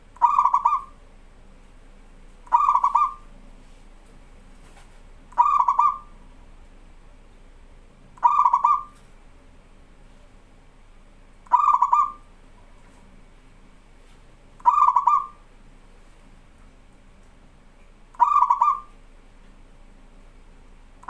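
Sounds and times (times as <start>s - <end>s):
dove cooing: 0.2s - 1.0s, 2.4s - 3.3s, 5.3s - 6.2s, 8.2s - 9.0s, 11.5s - 12.3s, 14.6s - 15.4s, 18.2s - 19.0s.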